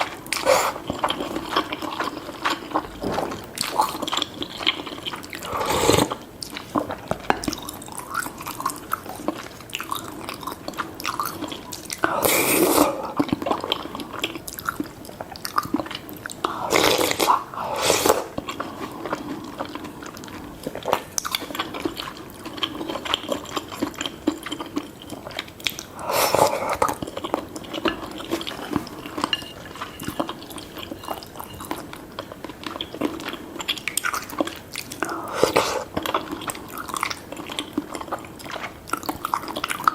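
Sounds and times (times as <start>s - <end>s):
noodle slurping: 0.0s - 6.2s, 12.0s - 13.2s, 16.5s - 19.4s, 25.9s - 27.0s, 35.0s - 36.3s
wet chewing and smacking: 0.0s - 12.2s, 12.8s - 39.9s.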